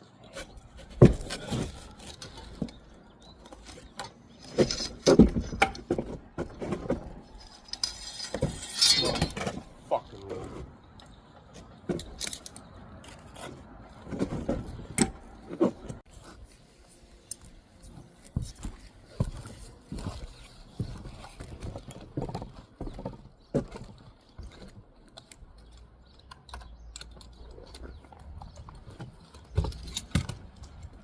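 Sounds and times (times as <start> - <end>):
trowel striking and scraping brick: 3.6 - 9.8.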